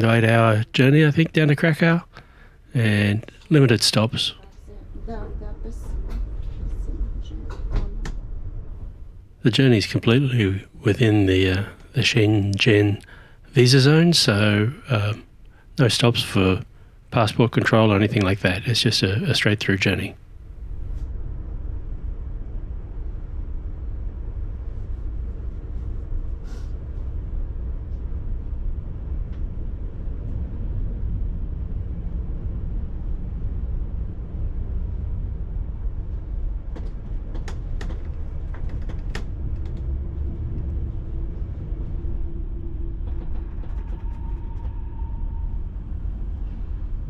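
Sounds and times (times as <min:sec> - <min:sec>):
train rumbling inside carriage: 0:02.8 - 0:13.0, 0:24.6 - 0:47.0
sharp clicks and ticks: 0:36.7 - 0:40.8.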